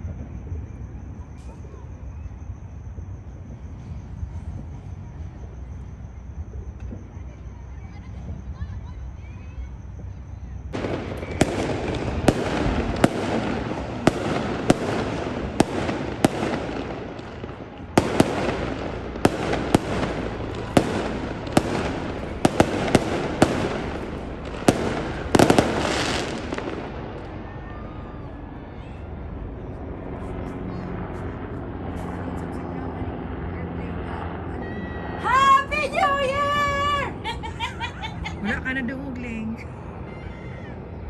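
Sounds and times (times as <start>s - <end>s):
firework shells bursting: 10.8s - 27.4s
fireworks crackle: 10.8s - 28.0s.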